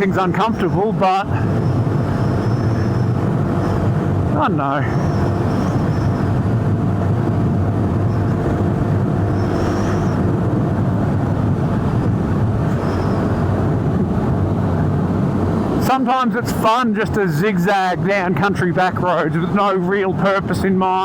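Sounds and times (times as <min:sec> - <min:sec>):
motorcycle engine cruising: 0:00.0 - 0:15.9
wind noise rushing: 0:00.0 - 0:17.3.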